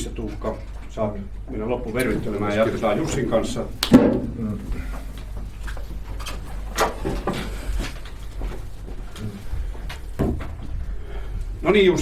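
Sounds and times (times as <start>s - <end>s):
knocks and rustles of people moving: 0.0s - 12.0s
steady low hum: 0.0s - 12.0s.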